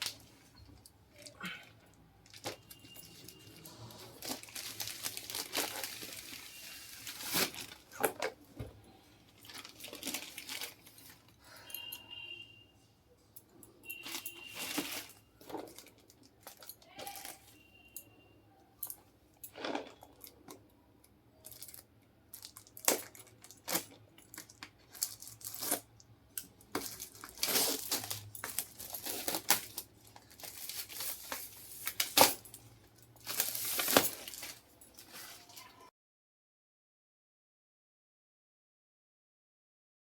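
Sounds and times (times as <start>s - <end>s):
paper tearing and crinkling: 3.6s - 8.0s.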